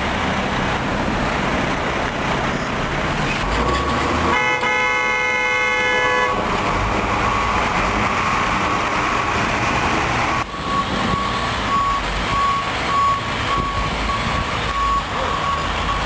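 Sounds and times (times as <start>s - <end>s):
truck and street noise: 0.0s - 16.0s
truck reversing beeper: 3.6s - 16.0s
vehicle horn: 4.2s - 6.4s.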